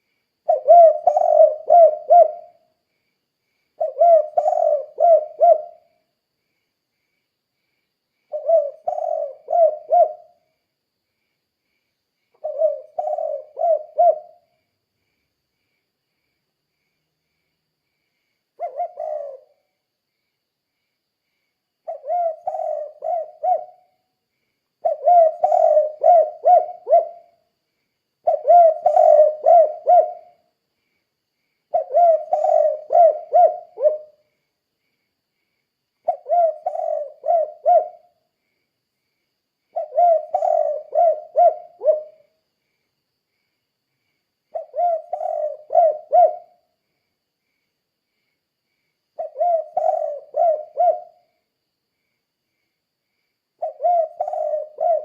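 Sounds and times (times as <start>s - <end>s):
dove cooing: 0.4s - 2.6s, 3.8s - 6.0s, 8.3s - 10.4s, 12.4s - 14.5s, 18.6s - 19.7s, 21.8s - 23.9s, 24.8s - 27.3s, 28.2s - 30.4s, 31.7s - 34.2s, 36.0s - 38.2s, 39.7s - 42.3s, 44.5s - 46.6s, 49.2s - 51.3s, 53.6s - 55.0s.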